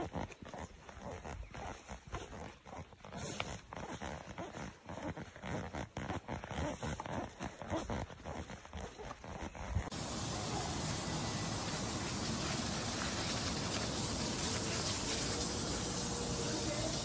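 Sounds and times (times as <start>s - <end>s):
backpack rustling and knocking: 0.0s - 10.0s.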